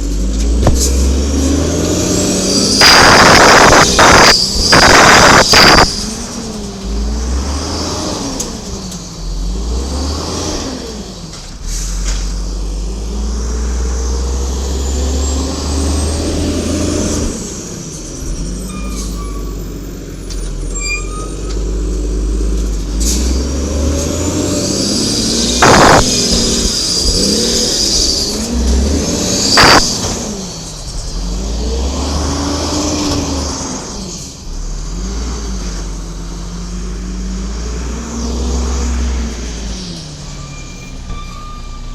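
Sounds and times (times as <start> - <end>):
air brake hiss: 11.6 - 12.1
truck engine running: 24.2 - 31.2.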